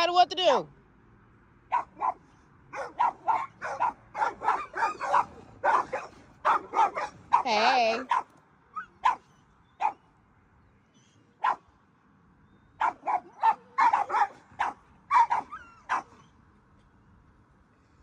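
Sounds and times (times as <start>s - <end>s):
dog barking: 1.7s - 10.0s, 11.4s - 11.6s, 12.8s - 16.3s.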